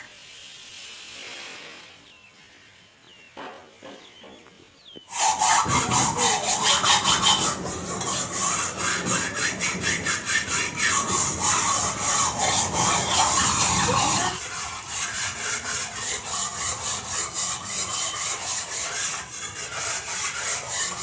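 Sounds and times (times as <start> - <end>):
rapid scraping strokes: 5.1 - 21.0.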